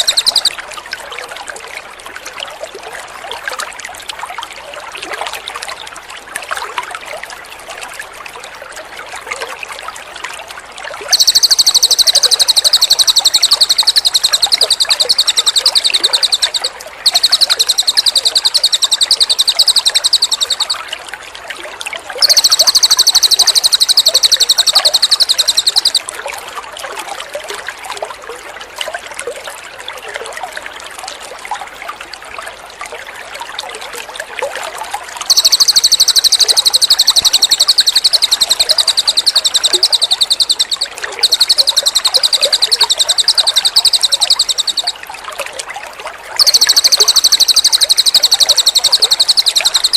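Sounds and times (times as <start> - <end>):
bird singing loud trills: 0.0 - 0.6, 11.1 - 20.8, 22.2 - 26.0, 35.3 - 45.0, 46.4 - 49.9
trickling water: 0.0 - 49.9.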